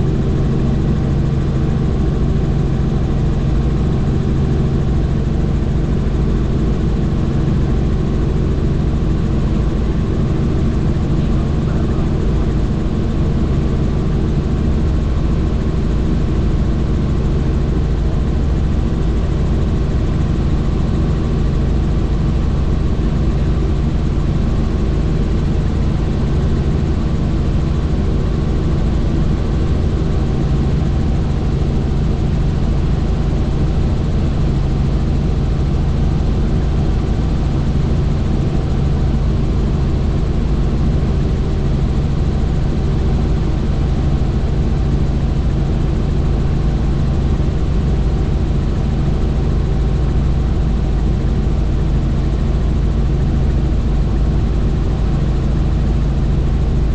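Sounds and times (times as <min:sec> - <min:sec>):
helicopter rotor and engine drone: 0:00.0 - 0:56.9.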